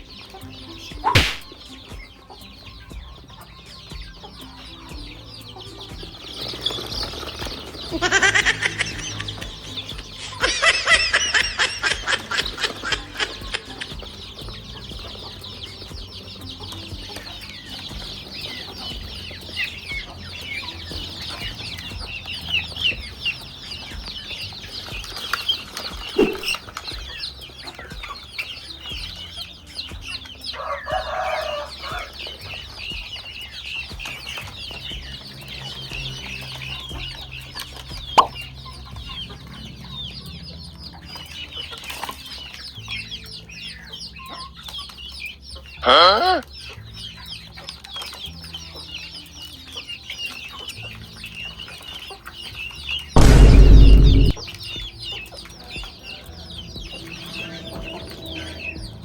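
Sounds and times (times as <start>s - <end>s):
chickens clucking: 0.0s - 53.1s
sharp knocks: 1.2s - 1.6s, 53.2s - 54.4s
loud chicken call: 7.9s - 9.4s, 10.1s - 14.0s.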